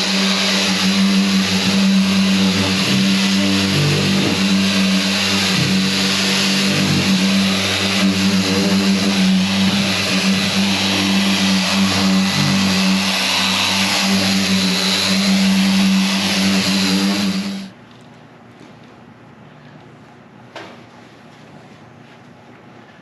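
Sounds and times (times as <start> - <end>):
power tool motor humming: 0.0 - 17.7.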